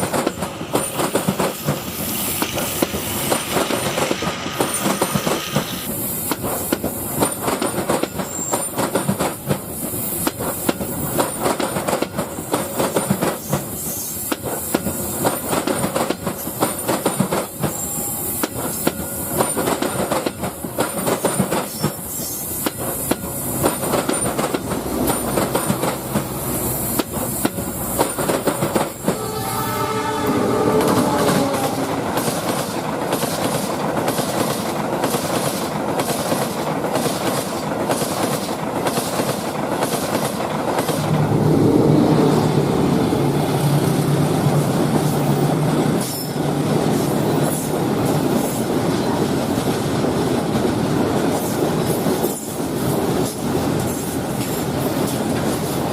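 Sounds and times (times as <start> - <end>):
train wheels clickety-clack: 0.0 - 29.9, 30.6 - 41.2, 43.5 - 55.9
gliding pitched tone: 29.0 - 32.5, 40.9 - 45.0.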